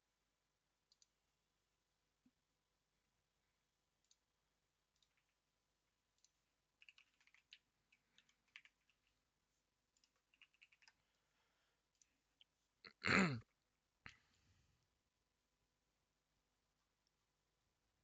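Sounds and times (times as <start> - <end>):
computer keyboard typing: 4.9 - 5.4, 6.2 - 9.2, 9.9 - 11.1.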